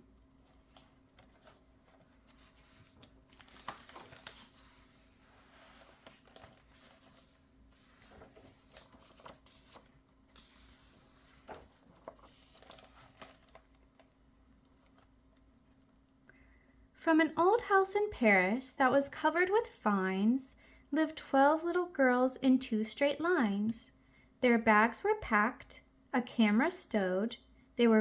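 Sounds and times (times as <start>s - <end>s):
book pages turning: 0.2s - 15.5s.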